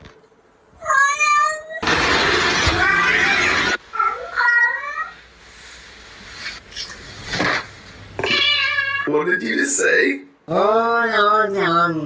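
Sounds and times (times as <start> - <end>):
cat meowing: 8.2 - 9.1
cat yowling: 8.2 - 9.1.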